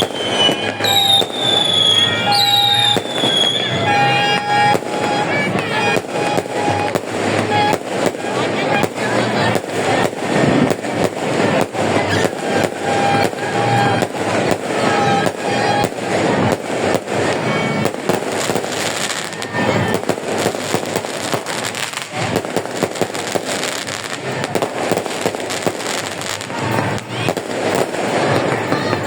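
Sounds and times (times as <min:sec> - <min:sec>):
short pitched tones: 0:00.0 - 0:09.3
fireworks bangs and crackles: 0:00.0 - 0:29.0.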